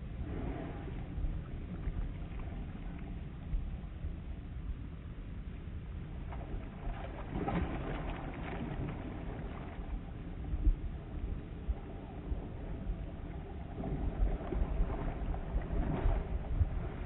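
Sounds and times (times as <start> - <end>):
water noise: 0.0 - 17.0
wind buffeting microphone: 6.4 - 17.0.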